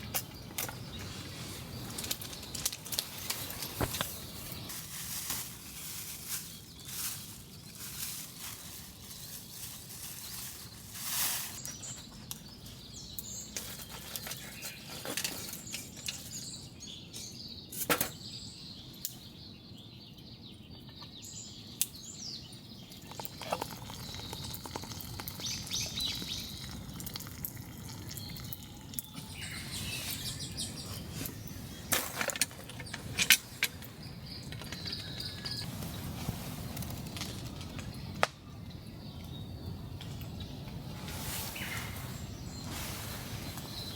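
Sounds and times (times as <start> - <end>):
birds chirping: 11.6 - 43.9.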